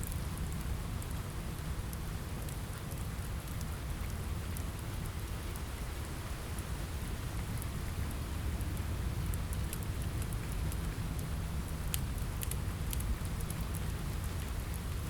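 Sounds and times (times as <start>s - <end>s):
steady rain: 0.0s - 15.0s
wood fire crackling: 6.6s - 15.0s.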